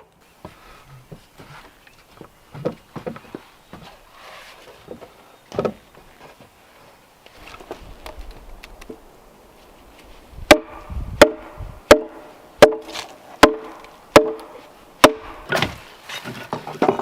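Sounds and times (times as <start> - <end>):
hand tool striking wood: 10.5 - 17.0.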